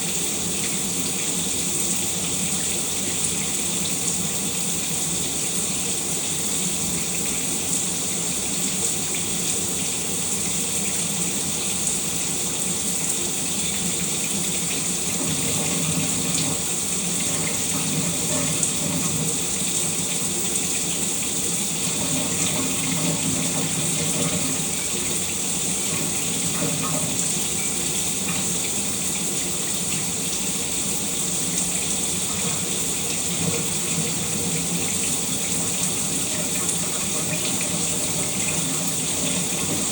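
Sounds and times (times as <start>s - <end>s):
shower water spraying: 13.9s - 39.9s.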